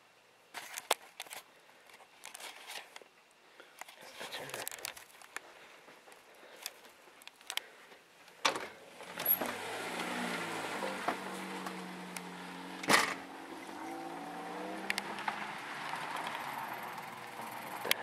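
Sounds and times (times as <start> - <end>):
car engine humming: 8.8 - 18.0.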